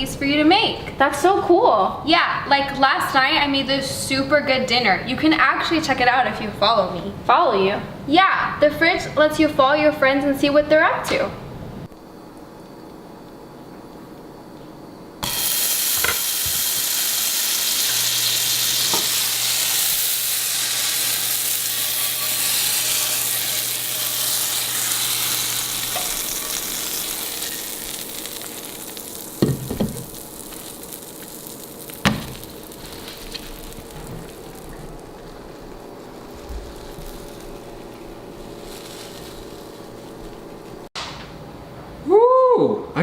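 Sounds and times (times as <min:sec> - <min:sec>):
food sizzling in a frying pan: 0:15.2 - 0:40.9.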